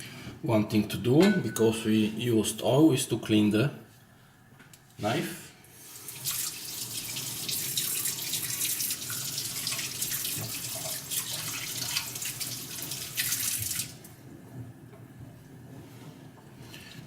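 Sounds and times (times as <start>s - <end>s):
water running from a tap: 5.8s - 14.2s.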